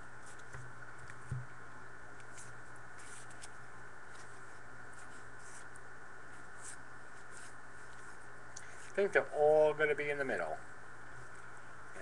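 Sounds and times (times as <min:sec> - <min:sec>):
steady low hum: 0:00.0 - 0:12.0
soft thumps: 0:00.5 - 0:01.5.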